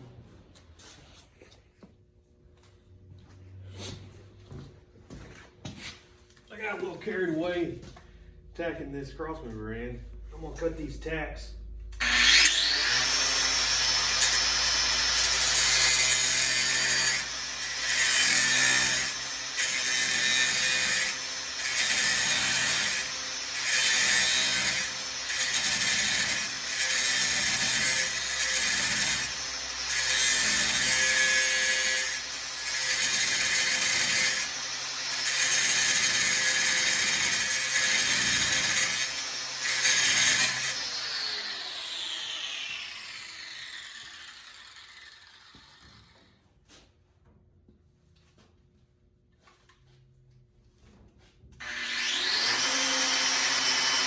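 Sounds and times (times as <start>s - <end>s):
power tool cutting steel: 12.0s - 46.4s, 51.6s - 54.0s
power tool spinning down: 12.0s - 46.4s, 51.6s - 54.0s.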